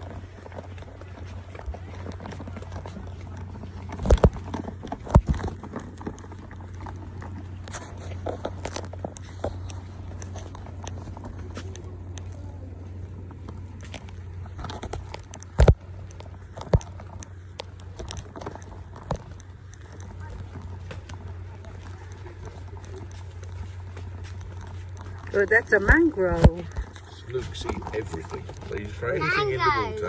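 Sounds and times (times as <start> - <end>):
footsteps: 0.0 - 30.0
steady low rumble: 0.0 - 30.0.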